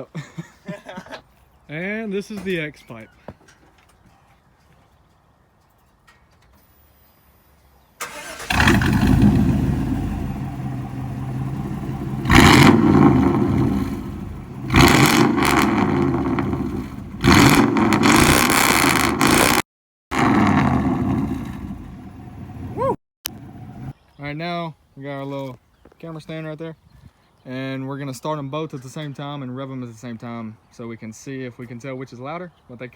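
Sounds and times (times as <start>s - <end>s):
pickup truck engine revving: 8.0s - 23.9s
pickup truck engine starting: 8.0s - 23.9s.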